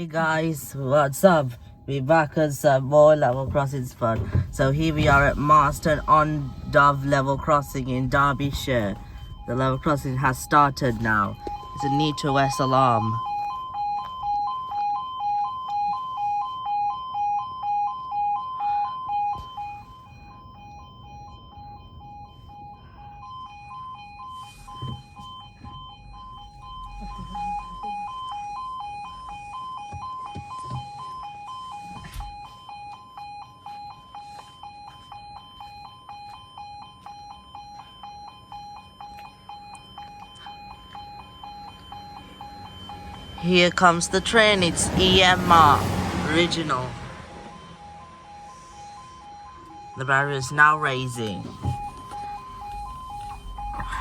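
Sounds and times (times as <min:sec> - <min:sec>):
level-crossing alarm pulsing tone: 0:00.0 - 0:54.0.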